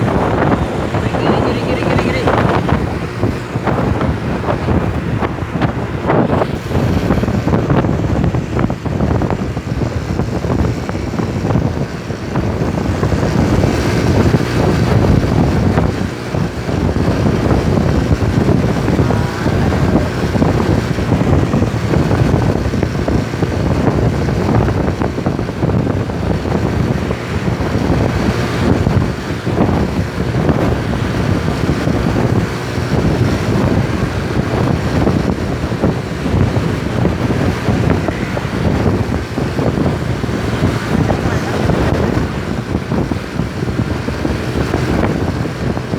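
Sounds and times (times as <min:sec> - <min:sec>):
moving truck rumble: 0:00.0 - 0:45.9
wind buffeting microphone: 0:00.0 - 0:45.9.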